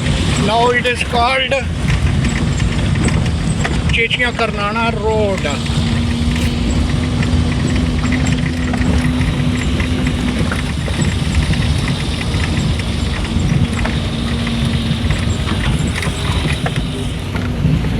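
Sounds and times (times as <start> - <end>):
small rattles and clicks: 0.0 - 17.9
vehicle engine rumble: 0.0 - 17.9
steady hum: 4.7 - 17.4.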